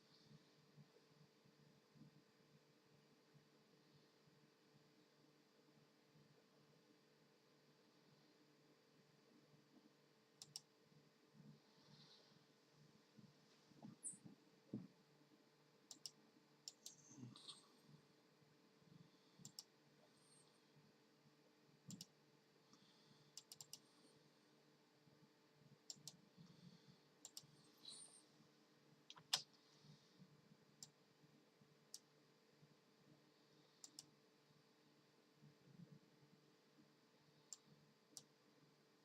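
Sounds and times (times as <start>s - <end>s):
faint steady hum: 0.0s - 39.0s
computer keys clicking: 10.4s - 10.7s, 15.9s - 17.5s, 19.4s - 19.7s, 21.9s - 22.2s, 23.4s - 23.8s, 25.9s - 26.2s, 27.2s - 27.5s, 33.8s - 34.1s.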